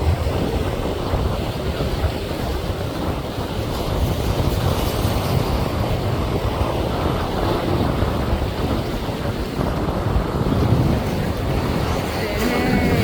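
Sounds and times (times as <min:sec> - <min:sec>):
ocean surf against rocks: 0:00.0 - 0:13.0
wind buffeting microphone: 0:00.0 - 0:13.0.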